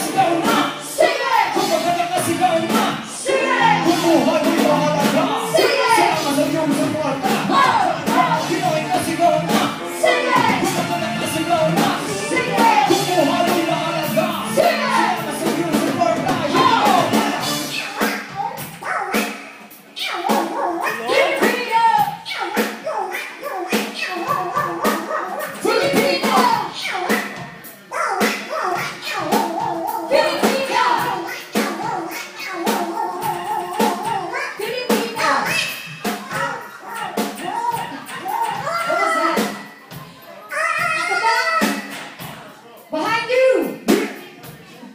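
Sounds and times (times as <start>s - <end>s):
lead singer singing: 0.0s - 18.2s
live rock band playing: 0.0s - 22.8s, 23.7s - 31.8s
drums: 0.0s - 44.9s.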